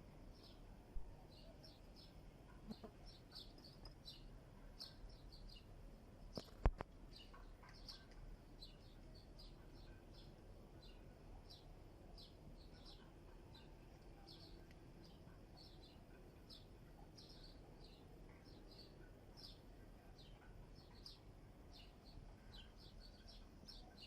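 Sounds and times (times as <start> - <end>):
birds chirping: 1.2 - 5.7, 6.3 - 24.0.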